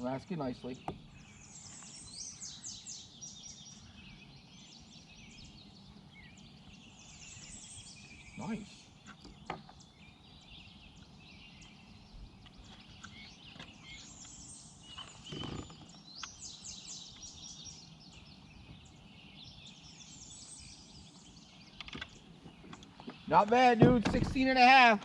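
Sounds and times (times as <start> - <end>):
songbirds chirping: 0.0 - 25.0.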